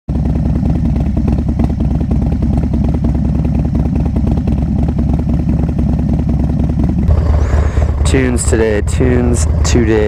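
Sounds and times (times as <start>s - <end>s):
motorcycle engine idling: 0.1s - 10.0s.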